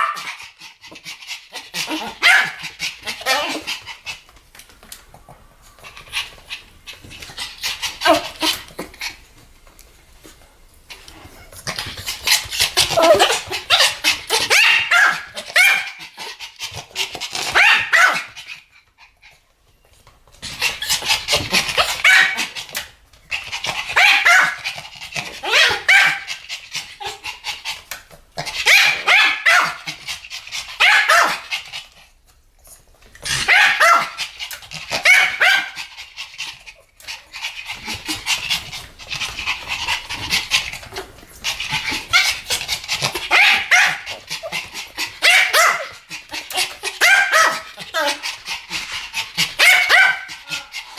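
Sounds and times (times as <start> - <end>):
dogs yappy barking: 0.0 - 0.6, 1.4 - 3.8, 12.7 - 16.2, 17.5 - 18.4, 20.9 - 22.7, 23.7 - 24.8, 28.5 - 30.0, 30.8 - 31.6, 33.3 - 36.0, 41.6 - 48.6, 49.2 - 50.9.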